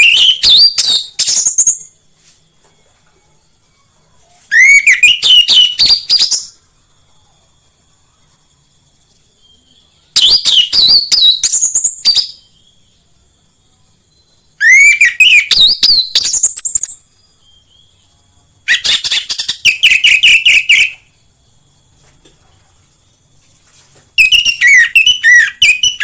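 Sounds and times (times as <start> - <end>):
thrush whistling song: 0.0 - 2.0, 4.4 - 6.6, 9.0 - 13.2, 14.0 - 22.0, 24.2 - 26.0.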